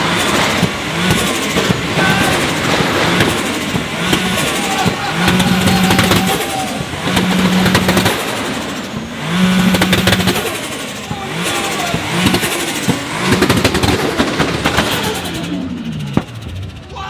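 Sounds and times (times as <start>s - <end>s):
car engine revving: 0.0s - 17.0s
exhaust crackling pops: 0.0s - 17.0s.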